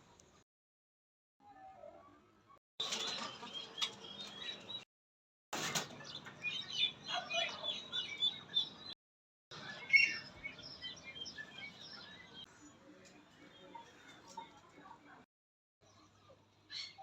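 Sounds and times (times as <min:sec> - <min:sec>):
small birds chirping: 0:02.8 - 0:04.8, 0:05.8 - 0:09.0, 0:09.6 - 0:14.7.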